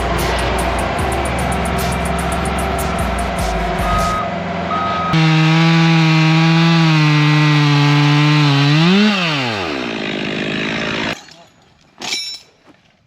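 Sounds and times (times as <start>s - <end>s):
chainsaw cutting wood: 5.2s - 11.2s.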